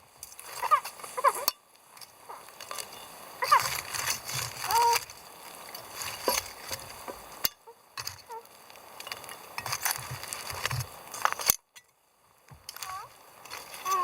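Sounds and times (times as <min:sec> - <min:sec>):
utensil scraping a pan: 0:02.3 - 0:08.3, 0:09.2 - 0:11.5.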